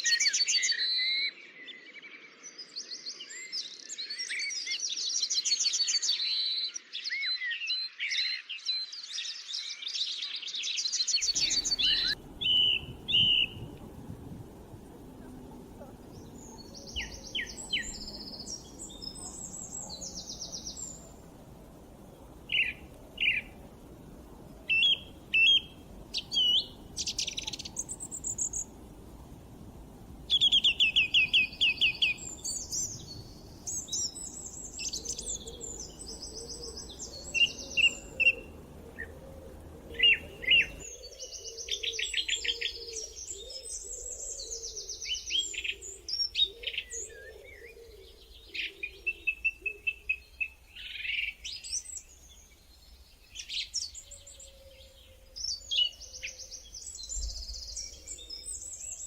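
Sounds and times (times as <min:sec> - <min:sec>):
songbirds singing and chirping: 0:00.0 - 0:59.0
low steady background noise: 0:11.0 - 0:59.0.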